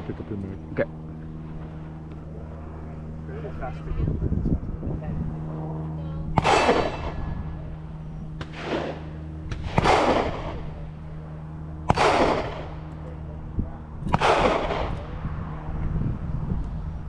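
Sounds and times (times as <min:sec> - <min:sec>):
gunshots with long echo: 0:06.4 - 0:07.3, 0:08.4 - 0:10.7, 0:11.9 - 0:12.8, 0:14.1 - 0:15.0.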